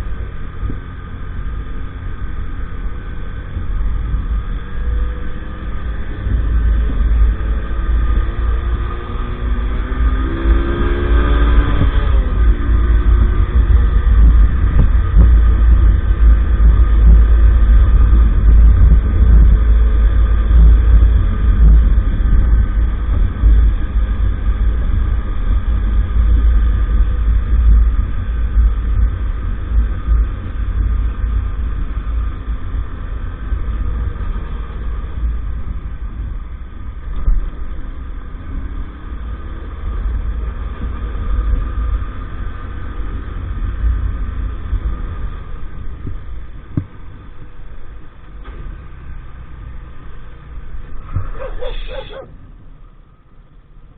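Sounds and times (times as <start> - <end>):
wind buffeting microphone: 0.0 - 38.3.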